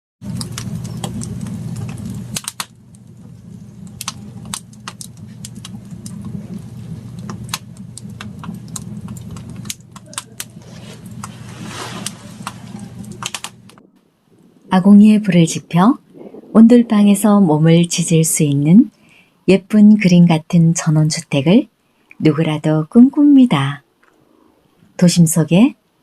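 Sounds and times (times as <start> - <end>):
motor humming: 0.2 - 18.2.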